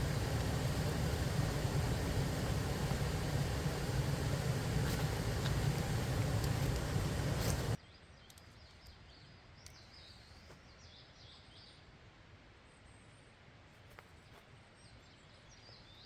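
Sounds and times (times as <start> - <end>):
steady rushing noise: 0.0 - 7.8.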